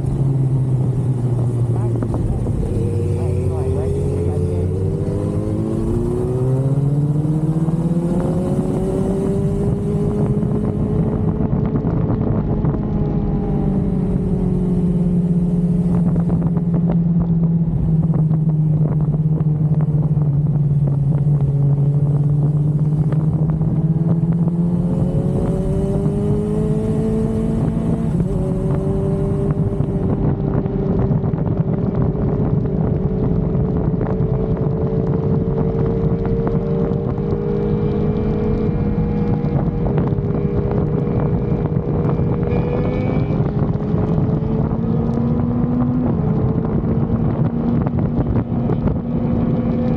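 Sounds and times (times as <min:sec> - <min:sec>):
motorcycle engine running: 0:00.0 - 0:49.9
wind rush on microphone: 0:00.0 - 0:49.9.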